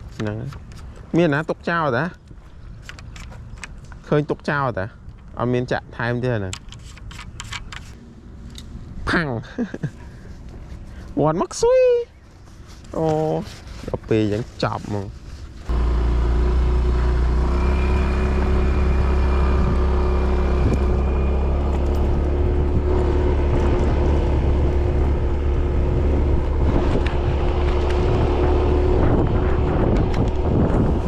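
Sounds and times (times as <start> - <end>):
motor engine humming: 15.7 - 31.0.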